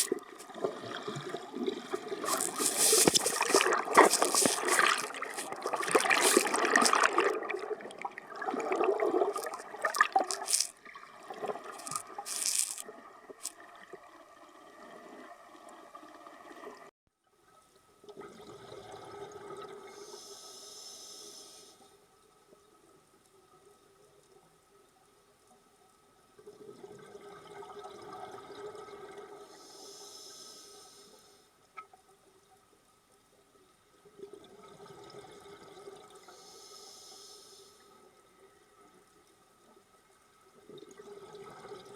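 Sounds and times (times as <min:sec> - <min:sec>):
water rushing and splashing: 0:00.0 - 0:12.8.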